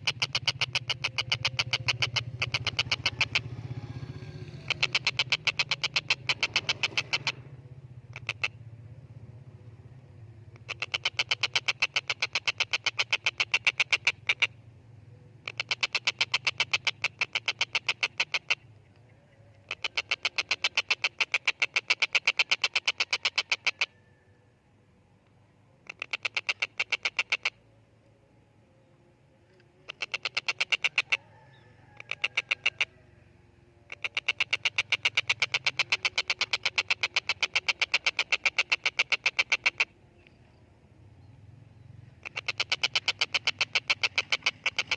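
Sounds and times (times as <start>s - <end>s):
kingfisher rattling call: 0.0s - 8.7s, 10.4s - 14.6s, 15.4s - 18.8s, 19.5s - 24.2s, 25.8s - 27.7s, 29.7s - 40.6s, 41.2s - 44.9s
faint low hum: 27.5s - 30.0s.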